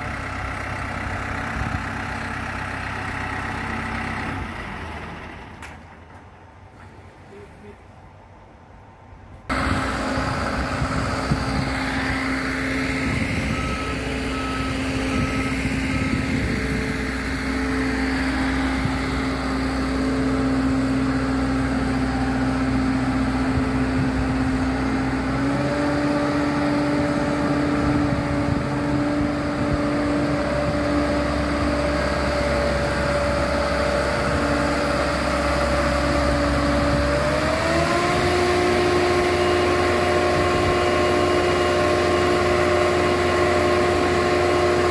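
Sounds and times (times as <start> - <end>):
engine running: 0.0 - 7.7, 9.3 - 44.9
short beeps: 13.0 - 17.0.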